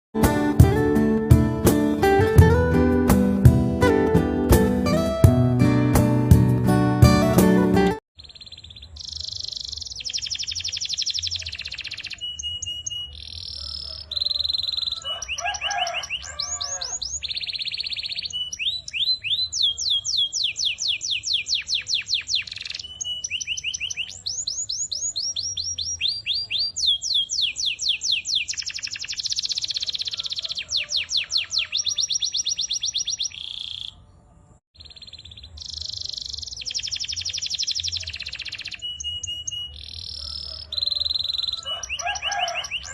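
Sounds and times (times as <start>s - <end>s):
canary singing trills: 8.2s - 34.2s, 34.8s - 42.9s.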